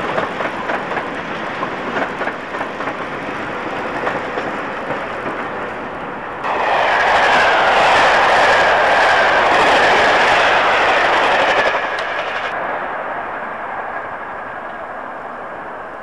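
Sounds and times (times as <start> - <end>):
distant train running: 0.0 - 16.0
train passing at speed: 0.0 - 16.0
click: 11.9 - 12.1.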